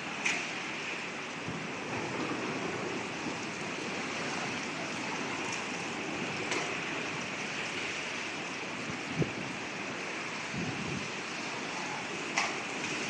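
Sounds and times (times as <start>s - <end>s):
strong wind rushing: 10.4s - 11.2s.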